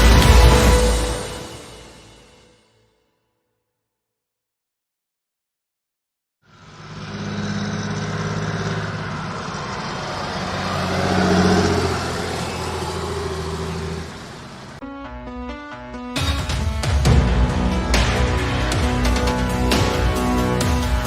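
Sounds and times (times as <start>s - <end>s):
combine harvester engine running: 6.5s - 14.8s.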